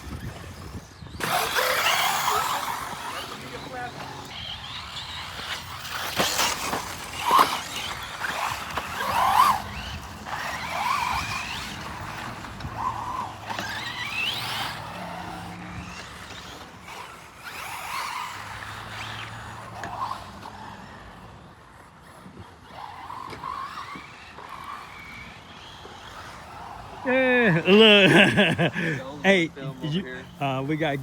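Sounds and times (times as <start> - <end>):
radio-controlled car motors whining: 0.0 - 31.0
tyres scrubbing on track: 1.2 - 21.2.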